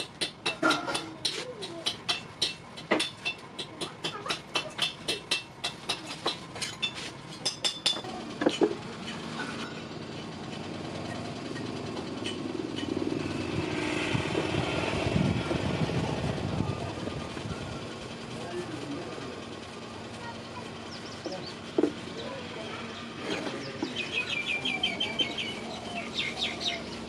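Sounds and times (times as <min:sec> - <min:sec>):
hammer striking metal on anvil: 0:00.0 - 0:09.8
engine-like drone: 0:00.0 - 0:27.0.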